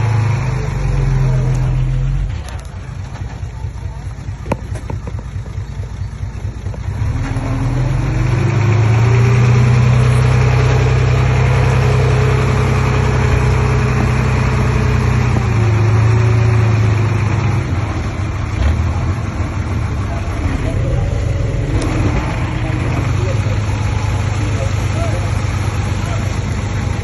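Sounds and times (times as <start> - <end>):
bulldozer diesel engine revving: 0.0 - 27.0.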